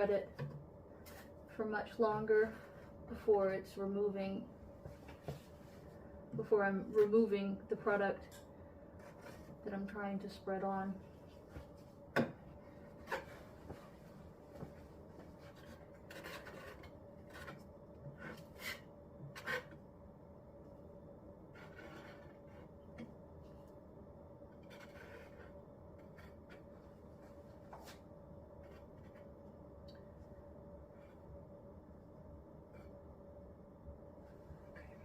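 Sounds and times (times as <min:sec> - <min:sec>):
putty knife scraping: 0:15.5 - 0:19.8, 0:21.5 - 0:22.8, 0:24.6 - 0:26.7.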